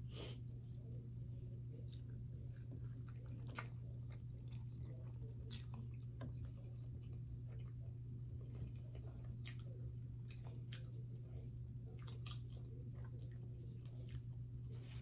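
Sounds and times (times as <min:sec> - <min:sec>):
steady low hum: 0:00.0 - 0:15.0
chewing with mouth smacks: 0:00.6 - 0:15.0.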